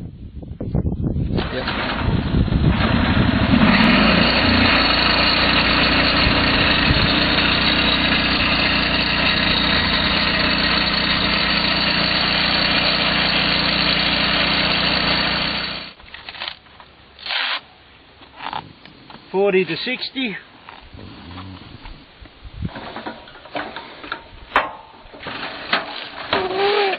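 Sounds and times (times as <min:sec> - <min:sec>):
sawmill engine running: 0:01.6 - 0:16.0.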